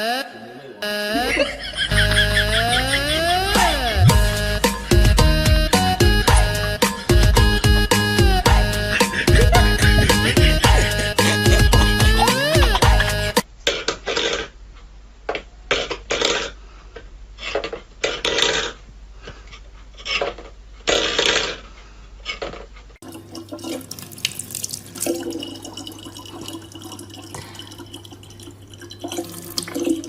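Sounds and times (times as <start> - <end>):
running water: 23.0 - 30.0
water splashing from tap: 23.0 - 30.0.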